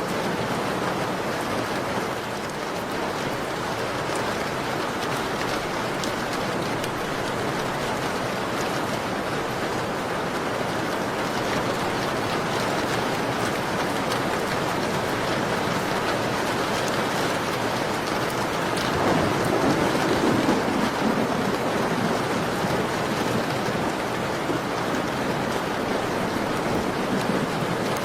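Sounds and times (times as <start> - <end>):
rain falling: 0.0 - 28.0.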